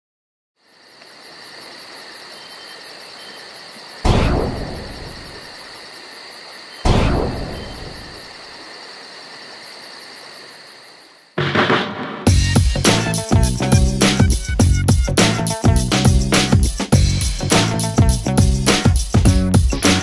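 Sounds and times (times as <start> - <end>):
cricket-like chirring: 0.6 - 11.4
deep boom hits: 4.1 - 5.4, 6.9 - 8.1.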